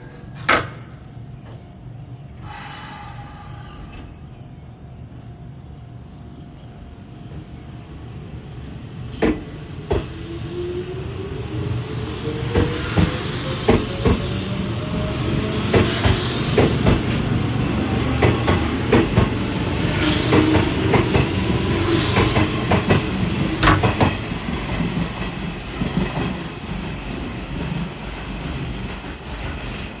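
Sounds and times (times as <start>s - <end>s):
wheels clicking over rail joints: 23.6s - 24.2s.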